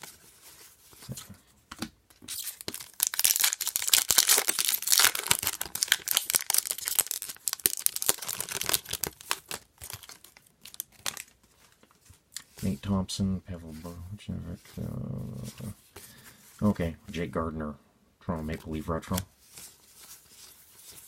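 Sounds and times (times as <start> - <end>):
wrapper tearing and crinkling: 2.3 - 11.9.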